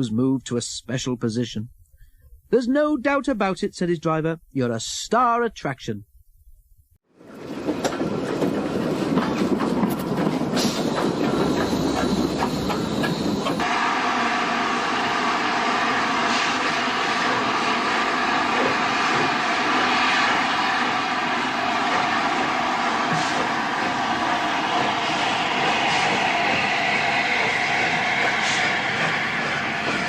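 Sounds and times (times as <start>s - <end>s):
train wheels clattering on rails: 7.2s - 13.7s, 18.4s - 30.0s.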